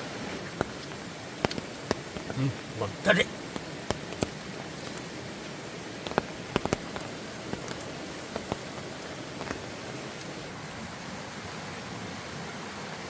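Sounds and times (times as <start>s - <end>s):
rain hiss: 0.0s - 13.0s.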